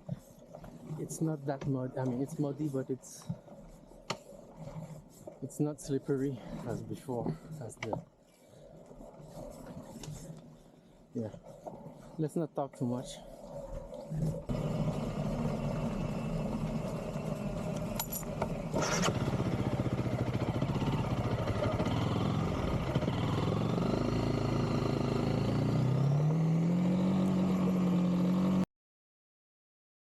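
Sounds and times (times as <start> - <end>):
motorcycle engine running: 14.3 - 28.6.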